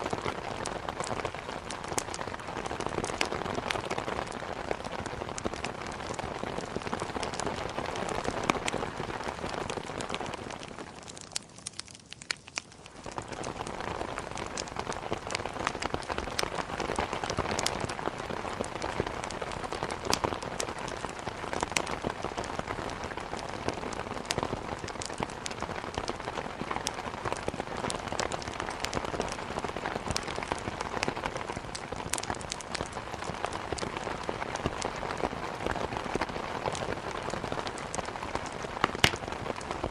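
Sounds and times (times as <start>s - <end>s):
wood crackling in a fireplace: 0.0s - 39.9s
heavy rain hitting a window: 13.0s - 39.9s.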